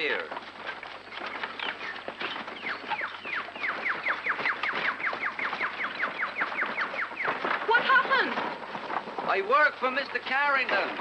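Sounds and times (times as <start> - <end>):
bird whistling downward notes: 1.4 - 7.5.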